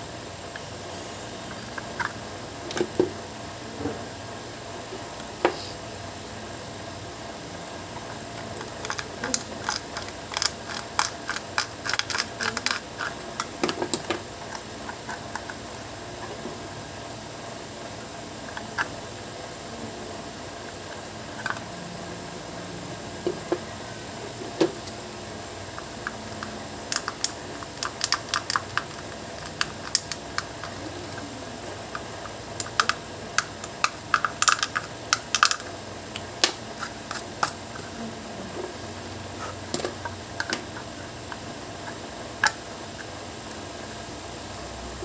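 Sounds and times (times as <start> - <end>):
background hum: 0.0 - 45.0
small hard parts clicking: 8.4 - 15.6, 25.8 - 30.8, 31.9 - 35.7.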